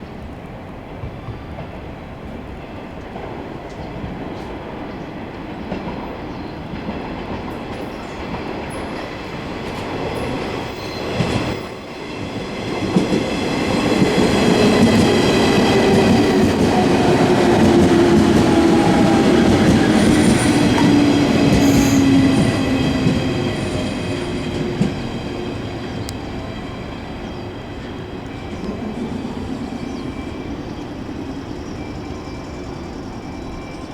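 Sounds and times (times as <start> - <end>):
train wheels rolling: 0.8 - 33.9
falling whine of braking train: 5.8 - 33.9
high brake squeal: 20.9 - 22.4.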